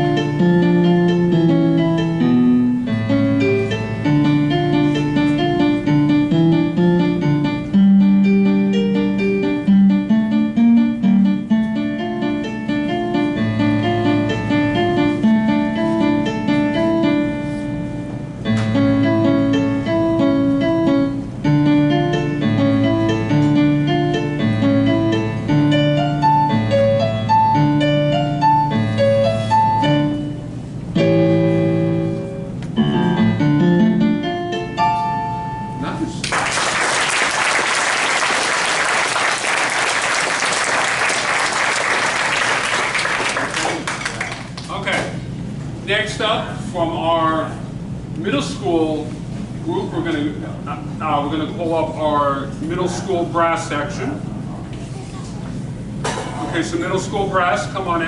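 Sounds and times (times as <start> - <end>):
solo piano piece: 0.0 - 44.6.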